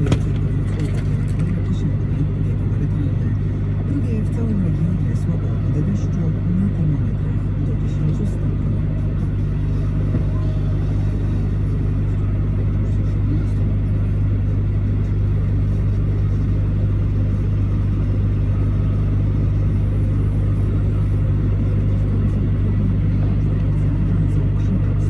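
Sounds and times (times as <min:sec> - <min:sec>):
road noise: 0:00.0 - 0:01.6.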